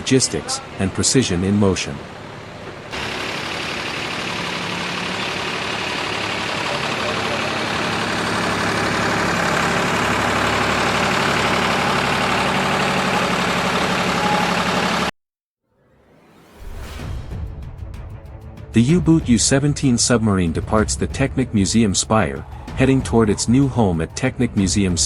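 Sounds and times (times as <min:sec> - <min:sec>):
truck engine running: 0:02.0 - 0:15.1, 0:18.7 - 0:25.0.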